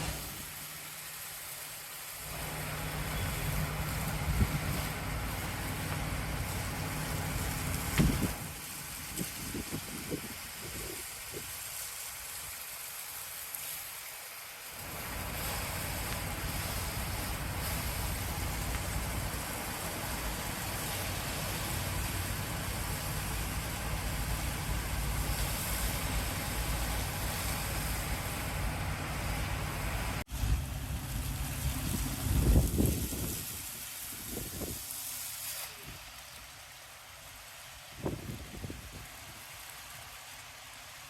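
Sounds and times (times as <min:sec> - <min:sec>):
broad hiss: 0:00.0 - 0:41.0
truck engine running: 0:02.2 - 0:10.2, 0:14.8 - 0:33.2.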